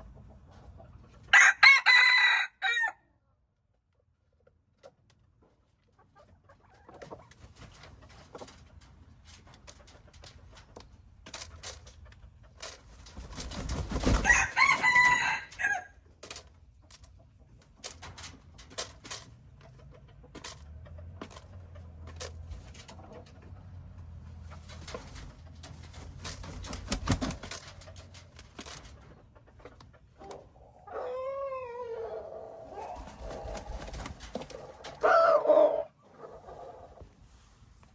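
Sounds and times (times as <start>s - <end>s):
rooster crowing: 1.3s - 3.0s, 14.2s - 15.9s, 35.0s - 35.9s
clicks and rustles: 7.1s - 14.3s, 16.2s - 23.6s, 24.3s - 30.0s, 32.8s - 35.0s.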